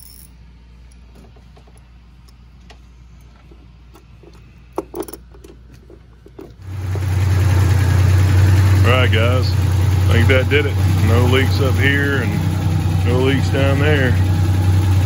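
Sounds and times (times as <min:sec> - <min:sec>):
car engine idling: 0:06.4 - 0:15.0.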